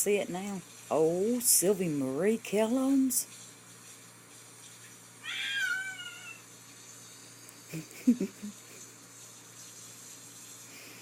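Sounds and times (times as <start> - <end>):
cat meowing: 5.2 - 6.5.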